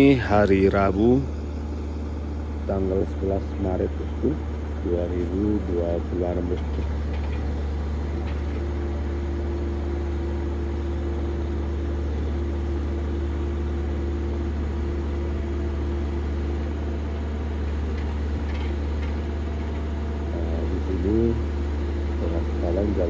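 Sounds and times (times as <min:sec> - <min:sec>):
engine droning with faint whine: 0:00.0 - 0:23.0.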